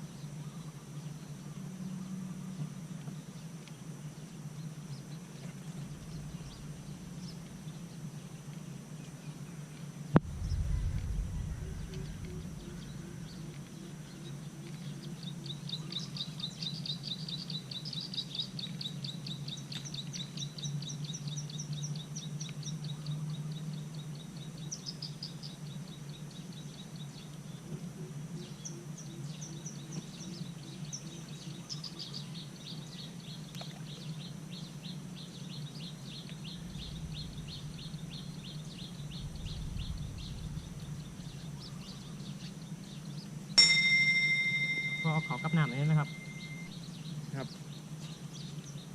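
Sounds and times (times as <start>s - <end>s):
steady low hum: 0.0s - 16.6s, 34.1s - 48.9s
bird rapid high chirps: 43.6s - 46.7s.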